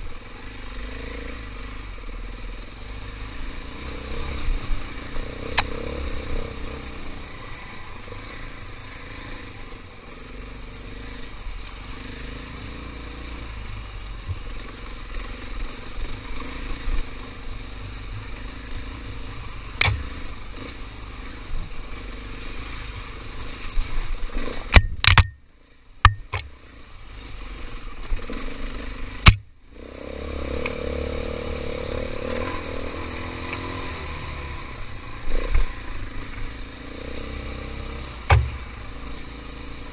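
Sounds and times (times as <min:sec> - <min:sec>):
dirt bike engine revving: 0:00.4 - 0:09.5, 0:14.5 - 0:23.6, 0:26.0 - 0:39.9
sharp knocks: 0:19.8 - 0:20.1, 0:24.8 - 0:25.4, 0:26.1 - 0:26.5, 0:29.2 - 0:29.5, 0:38.3 - 0:38.8.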